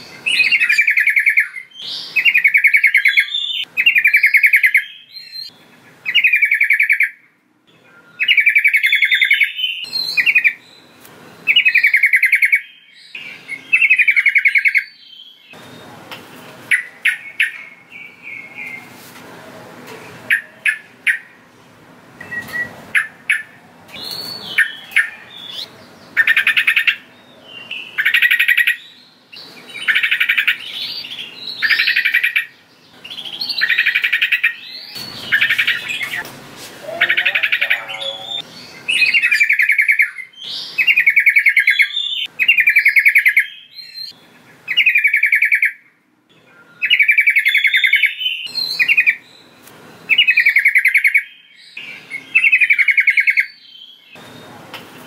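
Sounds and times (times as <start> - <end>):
bird chirps: 0.0 - 16.0, 22.2 - 36.2, 36.8 - 54.6
bulbul singing bubbly phrases: 36.8 - 38.5.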